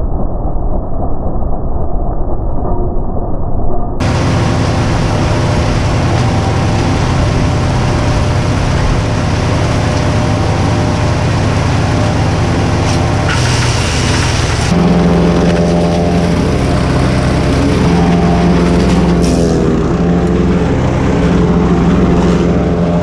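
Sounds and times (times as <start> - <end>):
wood chipper engine drone: 4.0 - 23.0
harsh hiss: 12.8 - 14.8.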